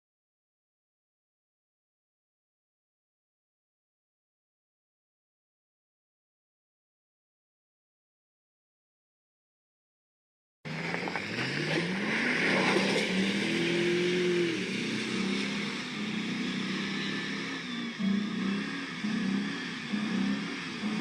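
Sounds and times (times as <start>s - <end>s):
vehicle engine revving: 10.7s - 21.0s.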